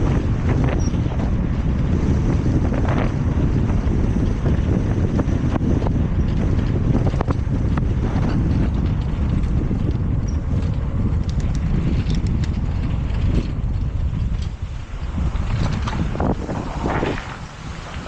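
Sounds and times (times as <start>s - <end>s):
wind buffeting microphone: 0.0s - 18.0s
light clicks and rattles: 4.0s - 17.2s.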